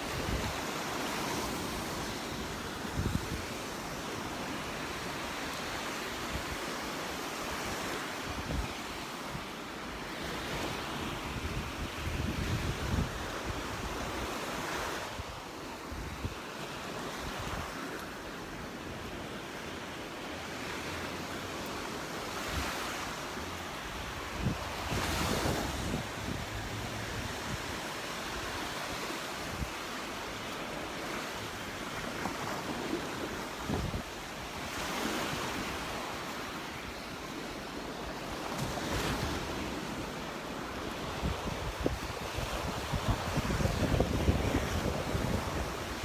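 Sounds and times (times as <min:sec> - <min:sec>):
waves breaking on beach: 0:00.0 - 0:46.0
wind buffeting microphone: 0:02.8 - 0:03.7, 0:10.2 - 0:16.4, 0:22.3 - 0:29.8, 0:41.0 - 0:46.0.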